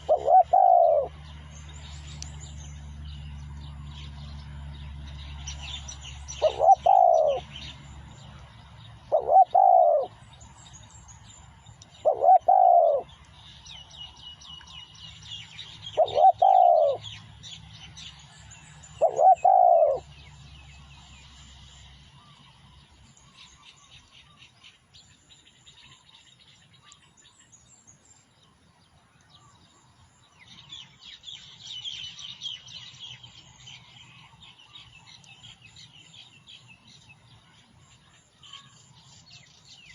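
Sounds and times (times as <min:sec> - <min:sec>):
dove cooing: 0:00.0 - 0:01.2, 0:06.4 - 0:07.5, 0:09.0 - 0:10.2, 0:12.0 - 0:13.1, 0:16.0 - 0:17.0, 0:19.0 - 0:20.1
small birds chirping faintly: 0:00.0 - 0:39.9.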